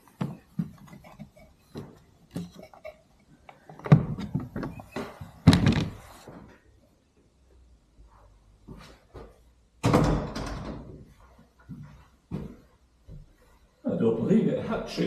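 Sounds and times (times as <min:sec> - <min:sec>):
wooden door opening and shutting: 0:03.7 - 0:06.2, 0:09.8 - 0:11.0.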